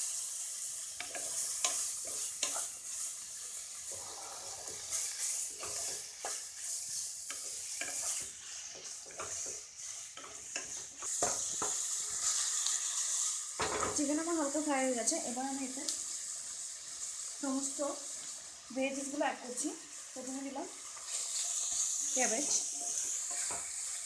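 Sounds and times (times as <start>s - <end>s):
chicken sizzling in oil: 0.0s - 24.0s
spatula scraping a pan: 0.8s - 14.0s, 20.9s - 24.0s.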